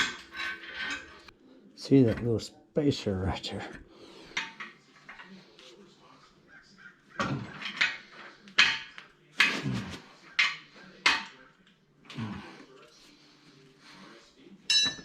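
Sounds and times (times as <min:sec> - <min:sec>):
crows cawing: 0:06.5 - 0:07.2.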